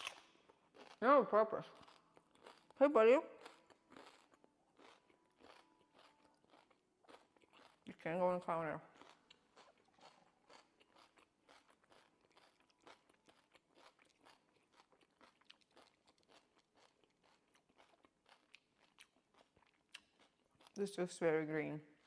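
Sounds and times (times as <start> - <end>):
faint chewing of food: 0.0 - 21.0.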